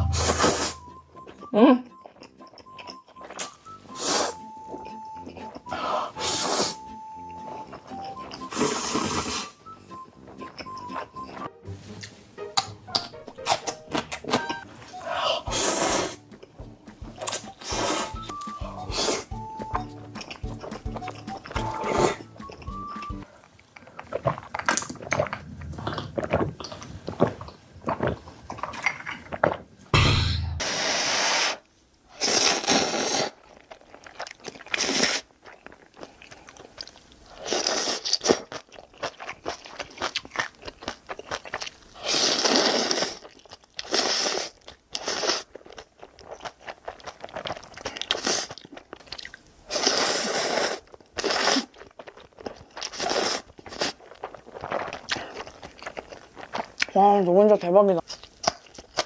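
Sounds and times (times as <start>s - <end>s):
chewing: 1.2s - 5.9s, 7.6s - 9.5s, 12.9s - 29.7s, 33.2s - 59.0s
noodle slurping: 5.6s - 6.9s, 8.4s - 9.6s, 14.9s - 16.2s, 17.2s - 19.6s, 32.2s - 34.0s, 34.6s - 35.3s, 41.9s - 45.6s, 49.7s - 52.1s, 52.8s - 56.0s.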